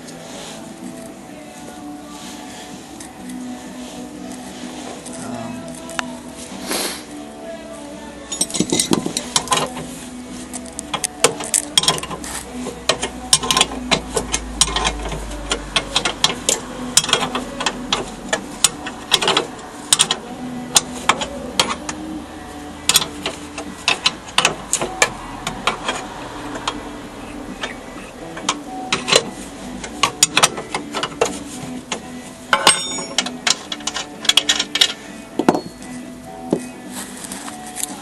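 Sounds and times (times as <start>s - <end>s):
metal tools clanking: 8.3s - 9.9s, 12.9s - 21.9s, 32.5s - 36.7s.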